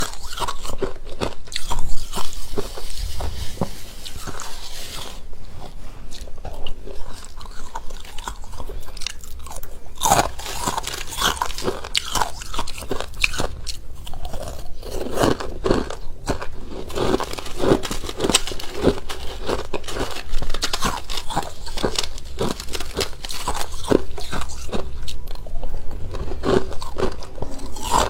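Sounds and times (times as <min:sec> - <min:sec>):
crunchy chewing: 0:00.0 - 0:28.0.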